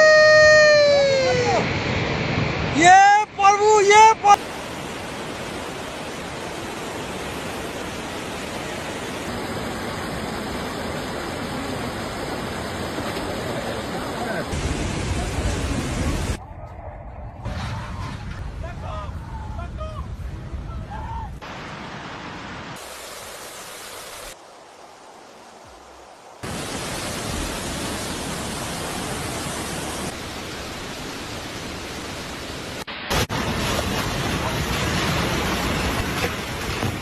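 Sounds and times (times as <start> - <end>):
floodwater rushing: 0.0 - 16.4, 21.4 - 37.0.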